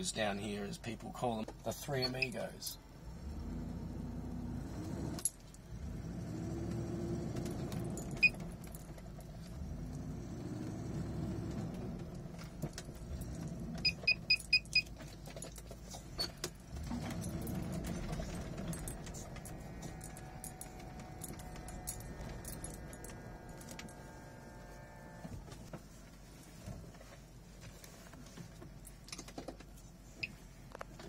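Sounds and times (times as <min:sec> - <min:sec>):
car engine revving: 0:02.9 - 0:14.3, 0:16.6 - 0:25.5.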